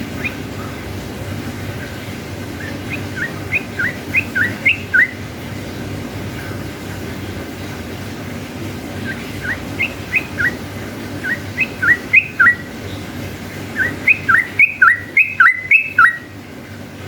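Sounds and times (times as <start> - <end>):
bird whistled song: 0.0 - 0.5, 2.5 - 5.2, 9.0 - 13.0, 13.7 - 16.4
low steady hum: 0.0 - 17.0.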